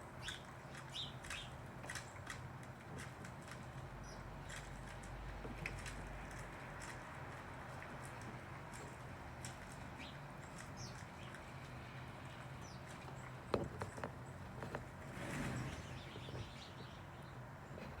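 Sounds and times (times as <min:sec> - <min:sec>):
birds chirping faintly: 0:00.0 - 0:18.0.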